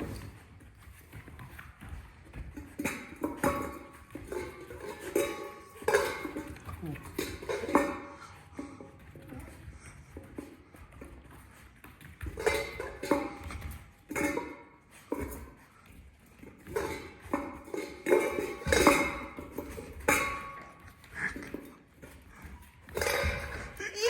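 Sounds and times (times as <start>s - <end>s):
food bowl clattering: 0.0s - 24.0s.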